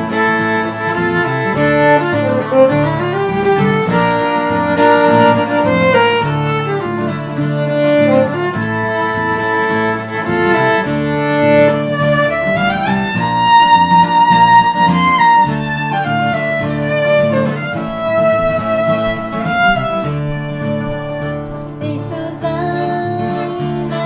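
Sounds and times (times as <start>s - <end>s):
fiddle lead: 0.0s - 24.0s.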